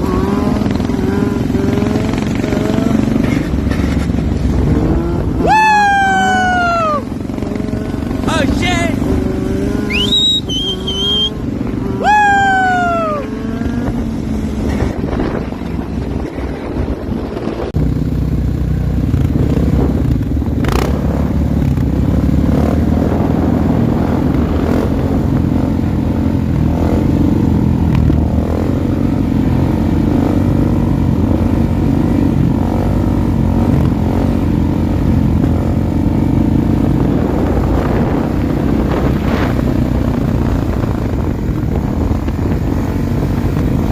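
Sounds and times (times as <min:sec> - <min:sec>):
motorcycle engine running: 0:00.0 - 0:43.9
falling whistle-like tones: 0:09.8 - 0:11.4.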